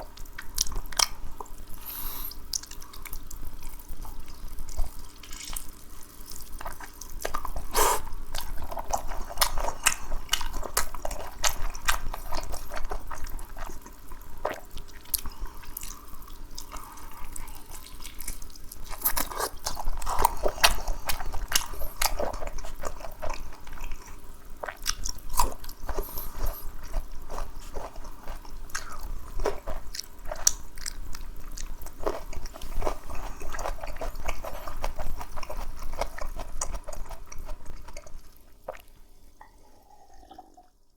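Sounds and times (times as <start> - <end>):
person chewing food: 0.0 - 40.7.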